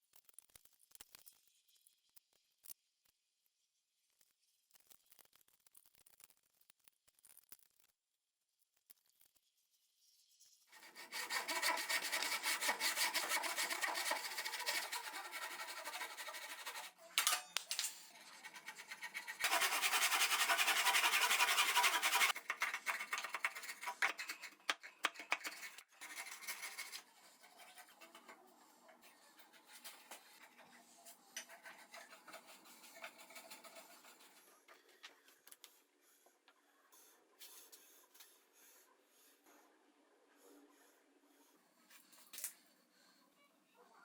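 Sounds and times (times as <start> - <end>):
hand tool scraping wood: 10.8 - 17.0, 18.1 - 28.4, 31.4 - 34.4.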